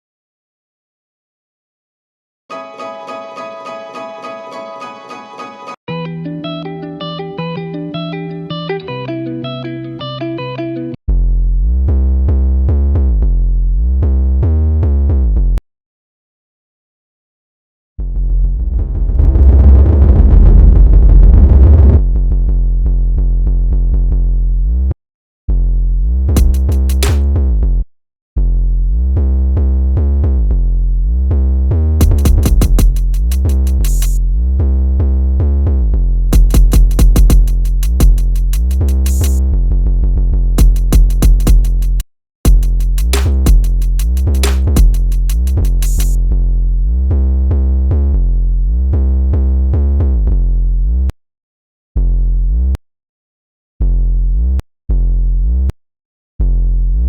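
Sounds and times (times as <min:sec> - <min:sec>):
heavy bass line: 0:11.1 - 0:15.6, 0:18.0 - 0:24.8, 0:25.5 - 0:27.8, 0:30.2 - 0:49.0
rapid hi-hat rolls: 0:26.4 - 0:27.2, 0:32.0 - 0:34.2, 0:36.4 - 0:39.4, 0:40.6 - 0:46.2
drum machine beat: 0:26.4 - 0:27.4, 0:32.0 - 0:34.2, 0:36.4 - 0:39.4, 0:40.6 - 0:46.2.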